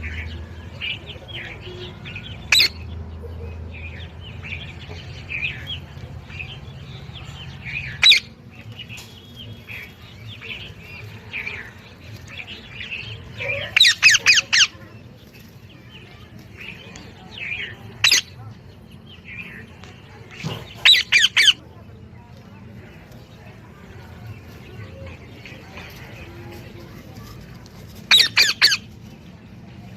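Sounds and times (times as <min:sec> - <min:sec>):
parrot shrill squawks: 0:13.7 - 0:14.7.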